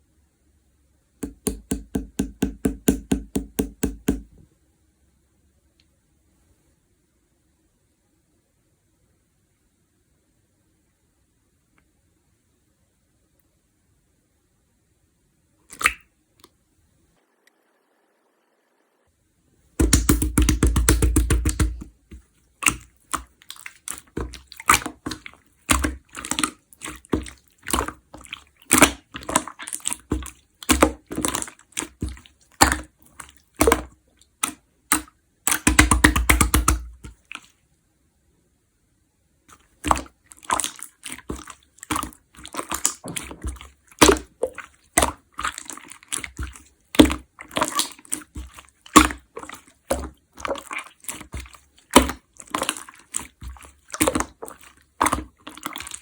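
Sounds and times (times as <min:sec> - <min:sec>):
slime squeezed by hand: 0:15.7 - 0:16.1, 0:19.8 - 0:37.5, 0:39.5 - 0:56.0
slime crackling: 0:22.6 - 0:37.5, 0:39.8 - 0:56.0.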